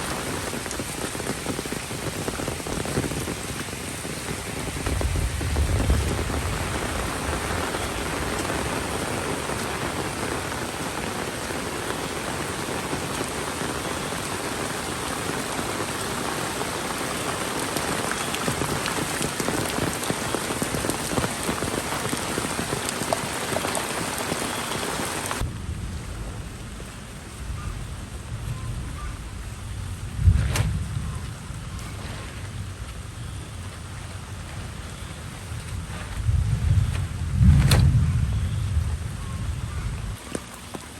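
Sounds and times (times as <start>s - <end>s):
steady rain falling: 0.0s - 40.9s
low rumble: 25.4s - 40.2s.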